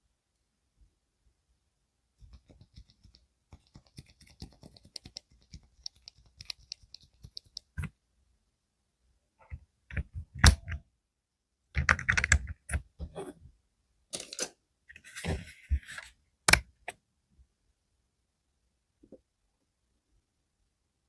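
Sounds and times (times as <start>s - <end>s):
mechanical keyboard clicks: 11.8s - 12.7s.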